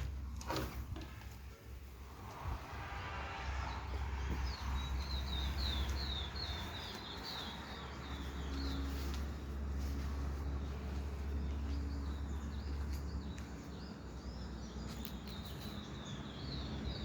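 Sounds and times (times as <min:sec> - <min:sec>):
steady low rumble: 0:00.0 - 0:14.8
bird chirping: 0:03.6 - 0:17.0.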